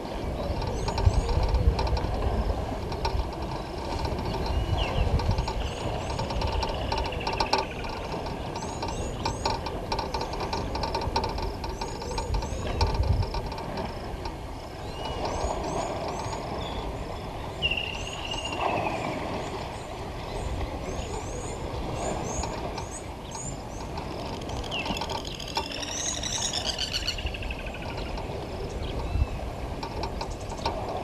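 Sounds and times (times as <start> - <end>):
birds chirping: 3.6 - 9.6, 14.7 - 29.5
rippling bird call: 24.4 - 29.4.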